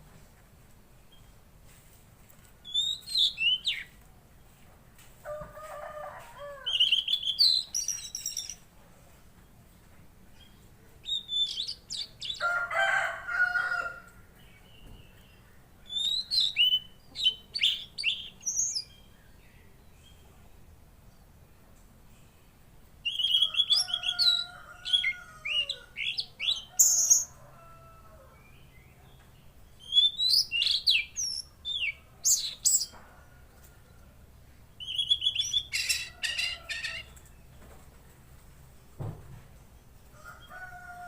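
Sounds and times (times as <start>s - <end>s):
songbird whistling: 23.1s - 24.4s, 29.8s - 32.8s, 34.8s - 36.1s.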